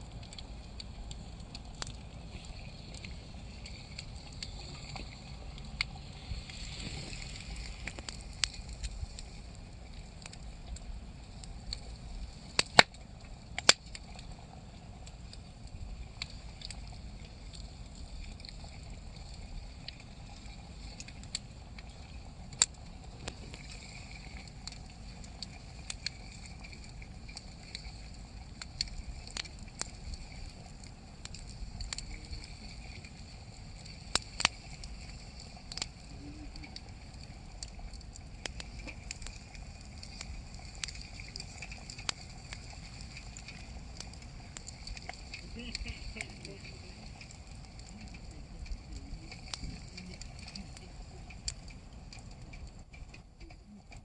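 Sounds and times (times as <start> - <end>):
wood campfire crackling: 0.0 - 54.0
sharp pops from fire: 6.9 - 9.3, 12.5 - 14.2, 22.5 - 23.7, 24.3 - 27.9, 33.9 - 35.0, 36.8 - 46.3.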